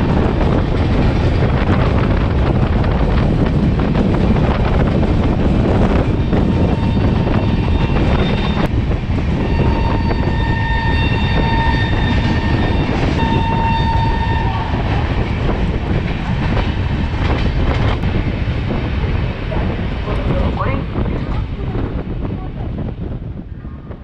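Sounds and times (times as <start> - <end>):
train rumbling with wheel clatter: 0.0 - 24.0
train horn blasts: 9.4 - 14.9.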